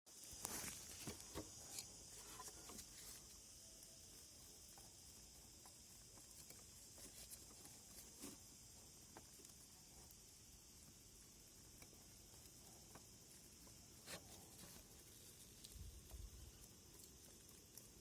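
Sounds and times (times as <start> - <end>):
faint steady hiss: 0.1 - 18.0.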